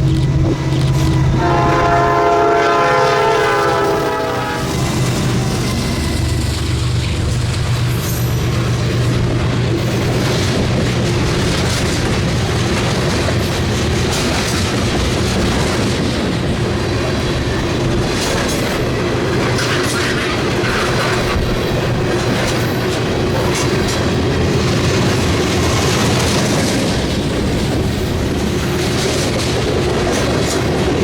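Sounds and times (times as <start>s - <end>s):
train wheels clattering on rails: 0.0s - 31.0s.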